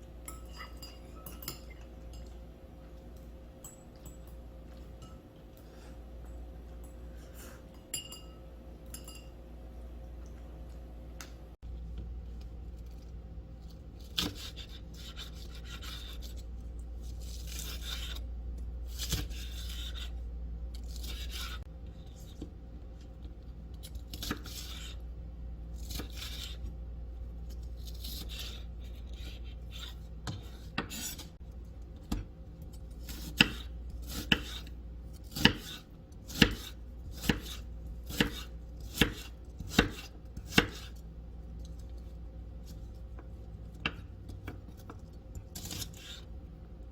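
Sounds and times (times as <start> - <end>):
knife chopping on cutting board: 33.0 - 41.0.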